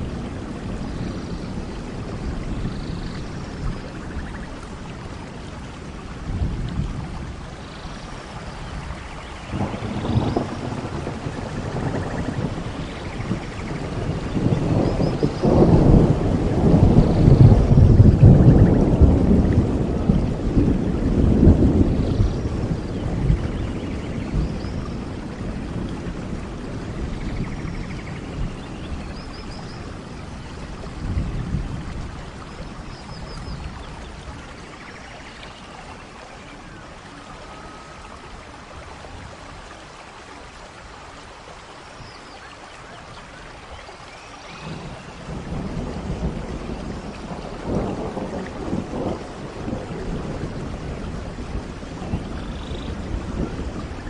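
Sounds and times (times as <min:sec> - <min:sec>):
low rumble of thunder: 0:00.0 - 0:40.8, 0:41.4 - 0:54.0
steady rain: 0:00.0 - 0:54.0.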